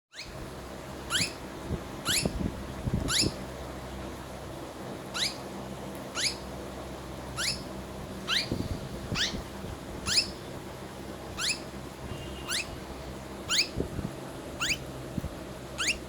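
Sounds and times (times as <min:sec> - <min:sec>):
parrot squeaking: 0:00.1 - 0:00.4, 0:01.1 - 0:01.4, 0:02.0 - 0:02.4, 0:03.0 - 0:03.4, 0:05.1 - 0:05.4, 0:06.1 - 0:06.5, 0:07.3 - 0:07.7, 0:08.3 - 0:10.4, 0:11.4 - 0:11.7, 0:12.4 - 0:12.8, 0:13.4 - 0:13.8, 0:14.6 - 0:14.9, 0:15.8 - 0:16.0.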